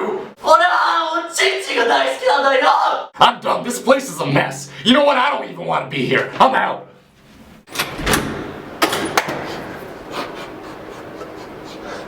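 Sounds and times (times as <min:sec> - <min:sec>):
heavy door thump: 0:07.7 - 0:09.9.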